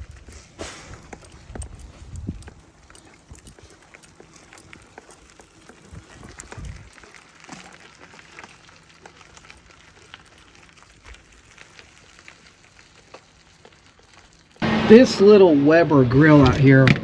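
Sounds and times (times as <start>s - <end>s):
sausages sizzling on a grill: 5.9s - 14.6s.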